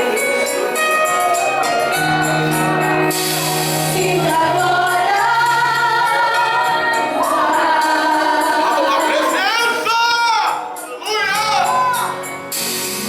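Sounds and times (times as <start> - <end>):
keyboard chords and bass: 0.0 - 13.0.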